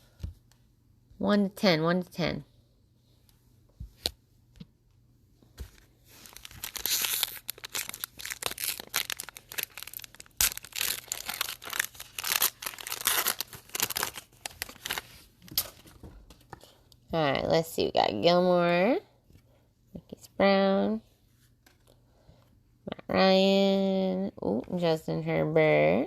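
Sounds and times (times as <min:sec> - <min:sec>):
card pack wrapper crinkling: 0:05.8 - 0:15.8.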